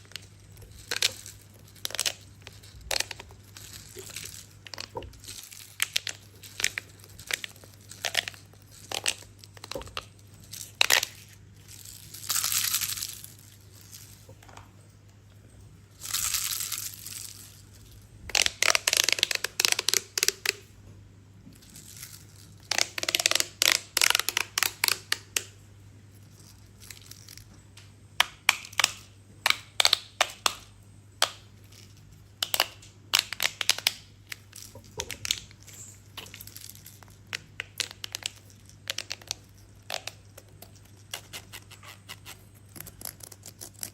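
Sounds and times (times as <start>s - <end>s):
plastic crinkling and rustling: 0.0s - 14.7s.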